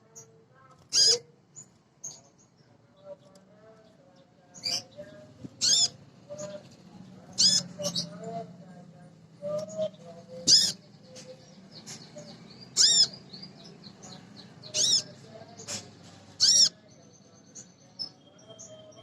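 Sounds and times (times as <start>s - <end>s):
bird twittering: 0.9s - 2.3s, 5.6s - 6.7s, 7.3s - 8.4s, 9.5s - 19.0s
high-pitched bird calls: 0.9s - 2.4s, 4.6s - 8.5s, 9.4s - 19.0s.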